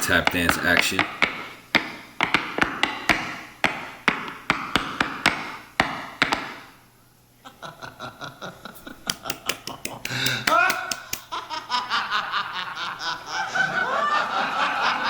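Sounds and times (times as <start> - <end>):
tap shoes striking stage floor: 0.0 - 6.7.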